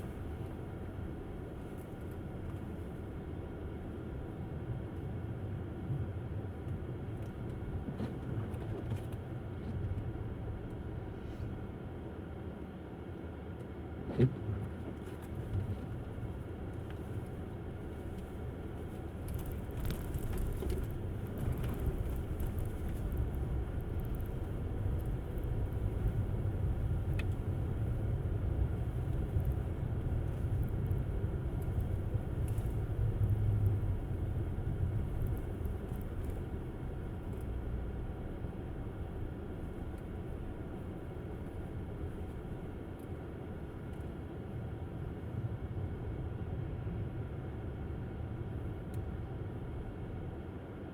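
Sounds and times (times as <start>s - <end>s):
tyre and road rumble: 15.4s - 42.9s.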